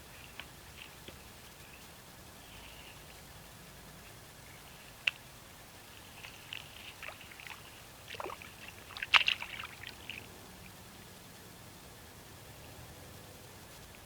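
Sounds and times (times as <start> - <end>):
water splashing and sloshing: 5.0 - 10.8.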